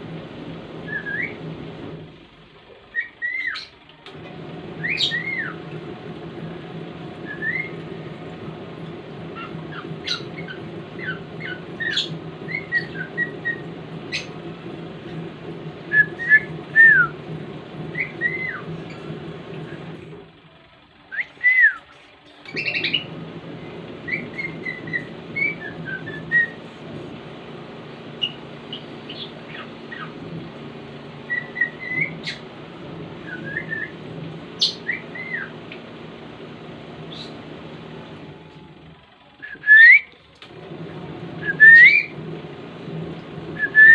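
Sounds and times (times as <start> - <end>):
cockatiel whistling and chirping: 0.9 - 1.4, 2.9 - 3.7, 4.8 - 5.6, 9.4 - 14.3, 17.9 - 19.0, 24.0 - 26.6, 31.3 - 32.4, 33.2 - 34.0, 34.6 - 35.5.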